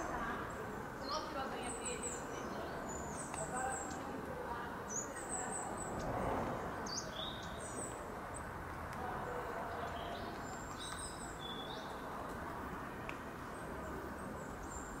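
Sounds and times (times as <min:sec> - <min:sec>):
birds chirping: 0:00.0 - 0:08.5, 0:09.2 - 0:12.2.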